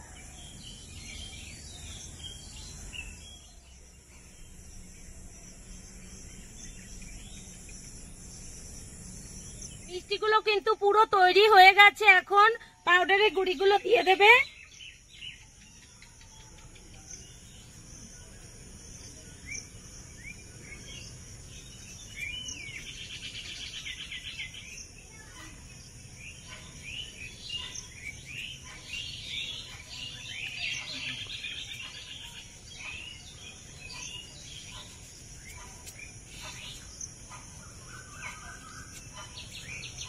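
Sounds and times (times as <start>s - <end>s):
small birds chirping: 0.0s - 40.0s
bird trill: 19.4s - 40.0s.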